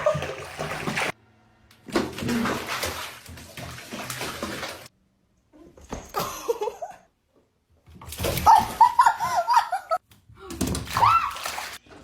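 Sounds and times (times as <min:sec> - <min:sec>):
water splashing: 0:00.0 - 0:01.2, 0:01.9 - 0:04.9, 0:10.6 - 0:11.9.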